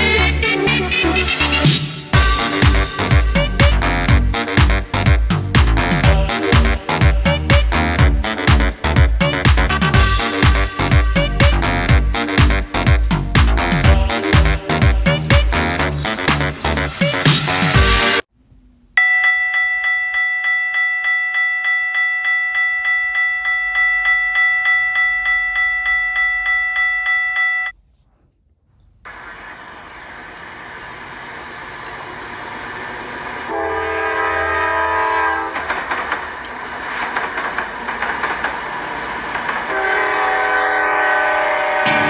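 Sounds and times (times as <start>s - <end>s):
train rumble approaching: 2.1s - 18.2s, 29.1s - 42.0s
railroad crossing bell ringing: 19.0s - 27.8s
locomotive horn blast: 33.5s - 35.7s, 39.7s - 42.0s.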